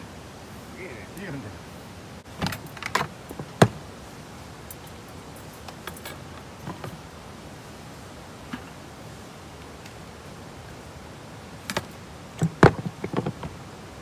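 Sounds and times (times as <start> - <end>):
sharp clicks and knocks: 2.3 - 3.9, 4.7 - 7.2, 8.4 - 8.8, 11.6 - 13.6.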